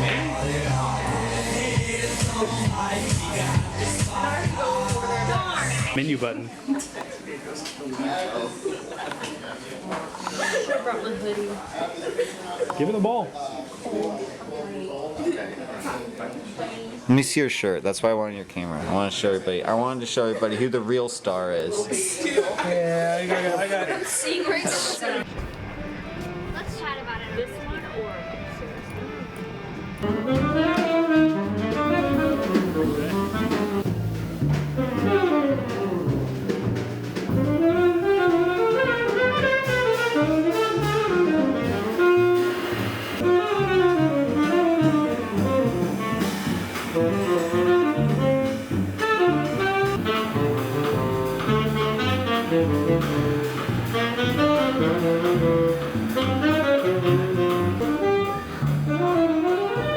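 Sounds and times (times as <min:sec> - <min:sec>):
bass line: 0:00.0 - 0:06.0, 0:30.0 - 0:59.9
drums: 0:00.0 - 0:06.0, 0:25.2 - 0:59.9
jazz saxophone melody: 0:28.2 - 0:59.9.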